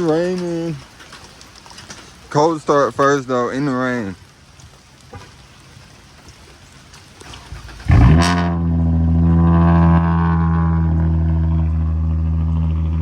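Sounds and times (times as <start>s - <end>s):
car engine starting and idling: 7.4s - 13.0s.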